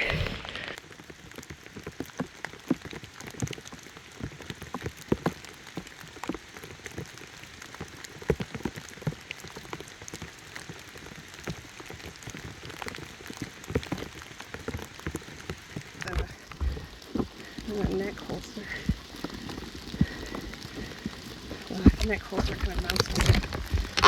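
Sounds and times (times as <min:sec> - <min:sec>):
rain drops tapping: 0:00.0 - 0:24.0.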